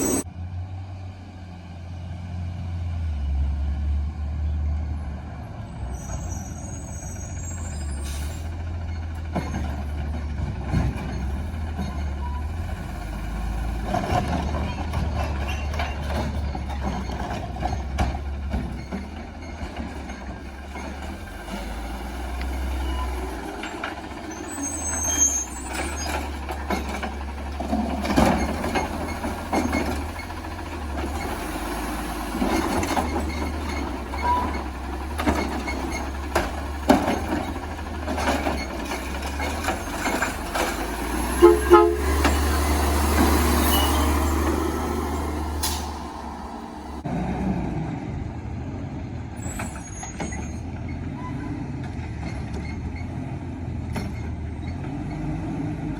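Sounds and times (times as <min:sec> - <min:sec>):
garbage truck engine humming: 0:06.6 - 0:49.3
knocks and clanks: 0:09.1 - 0:24.5, 0:25.5 - 0:47.1.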